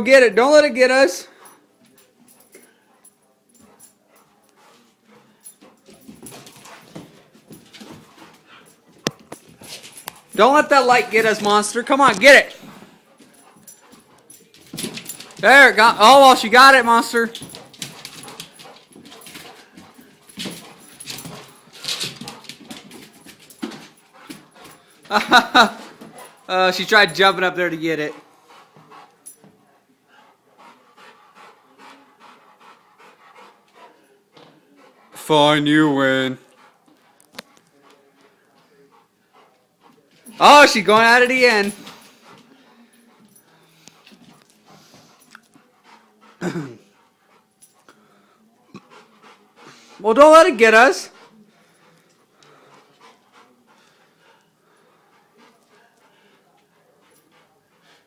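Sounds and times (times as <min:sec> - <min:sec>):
dog scuffing about: 0:03.6 - 0:27.2
dog breathing: 0:12.5 - 0:15.5, 0:30.0 - 0:50.0, 0:51.0 - 0:58.0.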